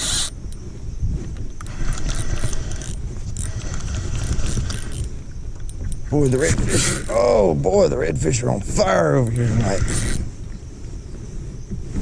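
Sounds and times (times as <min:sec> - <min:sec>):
fishing reel clicking: 0:00.0 - 0:00.6, 0:01.6 - 0:06.0, 0:09.2 - 0:10.2.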